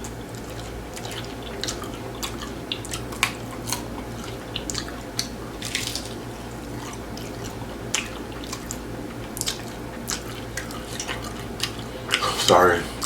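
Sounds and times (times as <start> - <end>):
chewing crunchy taco shells: 0.0 - 13.0.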